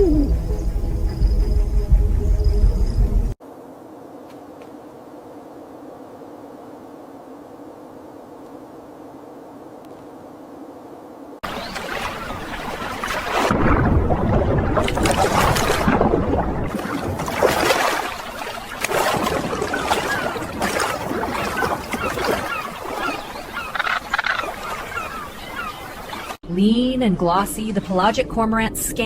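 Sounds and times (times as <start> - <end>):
water splashing and sloshing: 11.4 - 26.4.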